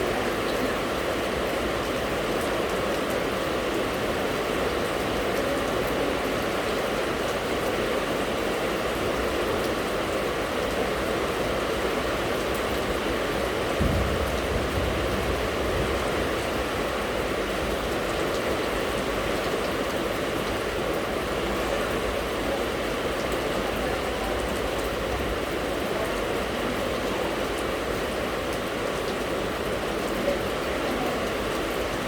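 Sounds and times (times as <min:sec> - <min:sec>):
steady rain falling: 0:00.0 - 0:32.0
low rumble: 0:13.8 - 0:17.4.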